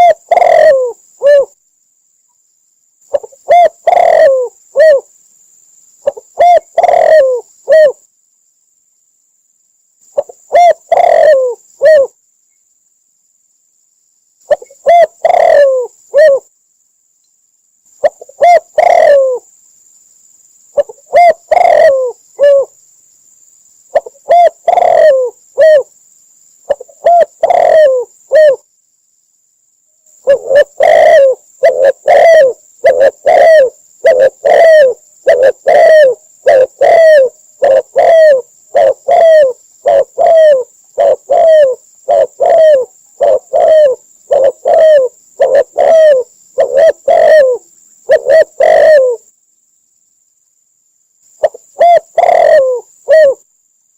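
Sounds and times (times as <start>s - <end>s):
dove cooing: 0.0s - 1.6s, 3.1s - 5.1s, 6.0s - 8.0s, 10.2s - 12.2s, 14.5s - 16.5s, 18.0s - 19.5s, 20.8s - 22.8s, 23.9s - 25.9s, 26.7s - 28.7s, 30.2s - 49.3s, 51.4s - 53.4s.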